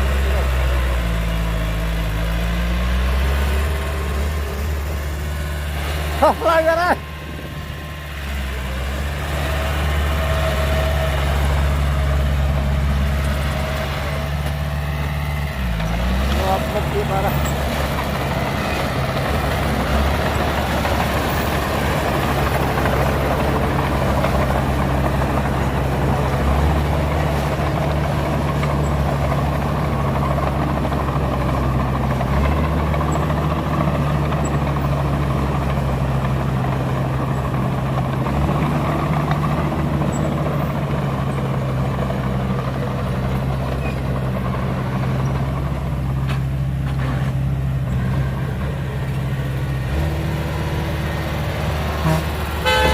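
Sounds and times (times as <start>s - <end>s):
heavy diesel engine droning: 0.0s - 52.9s.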